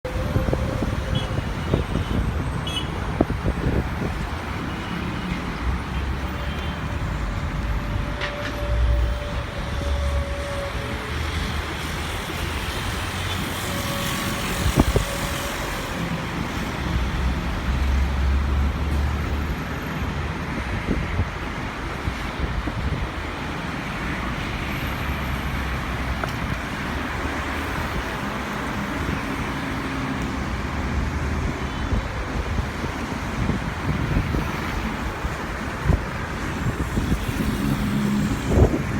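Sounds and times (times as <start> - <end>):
engines and traffic rumble: 0.0 - 38.9.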